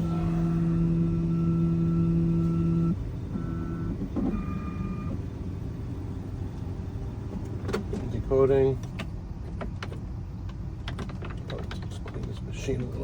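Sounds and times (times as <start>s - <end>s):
key-cutting machine motors whining: 0.0s - 5.2s.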